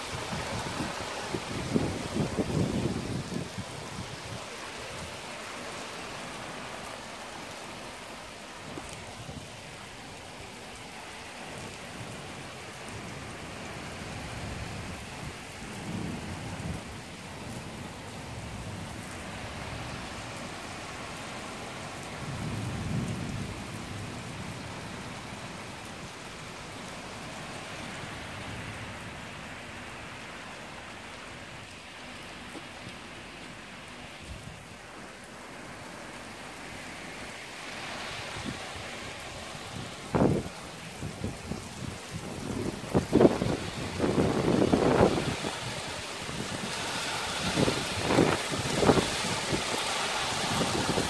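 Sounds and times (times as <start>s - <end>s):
thunder rumbling: 0.0s - 4.4s, 39.8s - 51.0s
heavy rain: 0.0s - 51.0s.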